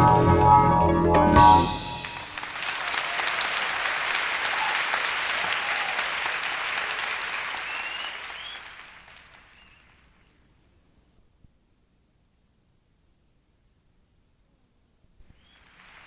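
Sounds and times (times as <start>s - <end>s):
audience applauding: 0.8s - 10.3s, 15.4s - 16.0s.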